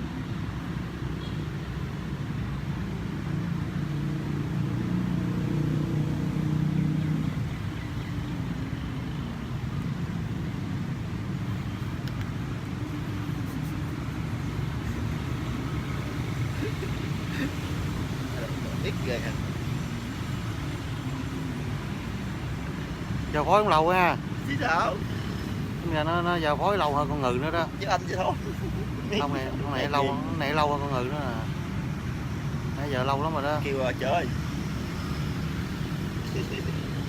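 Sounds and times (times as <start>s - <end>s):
road traffic rumble: 0.0s - 37.0s.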